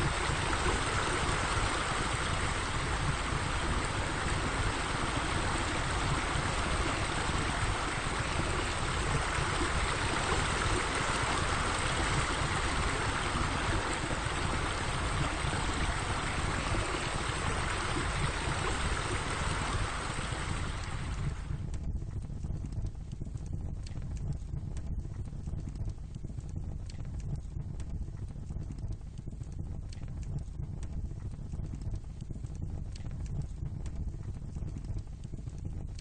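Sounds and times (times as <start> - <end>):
running water rushing: 0.0 - 21.6
rough low rumble: 0.0 - 36.0.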